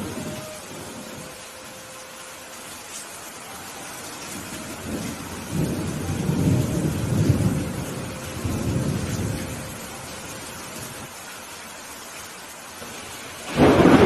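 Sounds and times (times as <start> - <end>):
steady rain: 0.0 - 14.0
thunder rolling: 4.3 - 11.1, 13.4 - 14.0.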